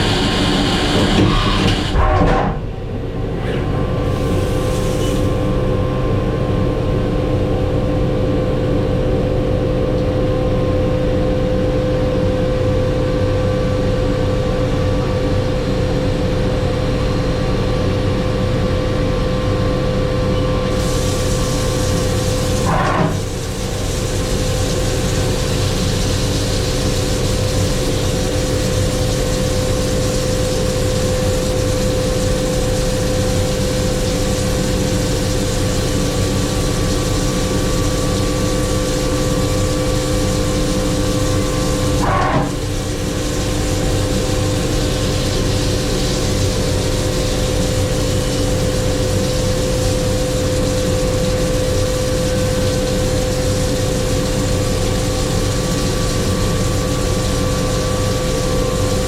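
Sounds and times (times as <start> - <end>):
machine hum with whine: 0.0 - 59.0.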